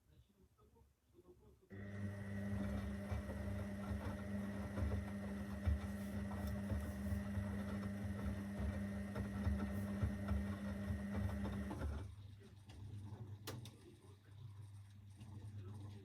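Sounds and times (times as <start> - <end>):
washing machine running: 1.8 - 16.0.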